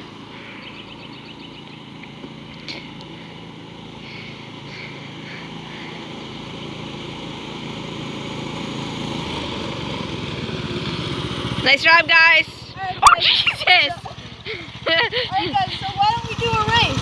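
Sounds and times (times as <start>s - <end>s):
mini bike engine buzzing past: 3.6s - 13.0s, 13.8s - 17.0s.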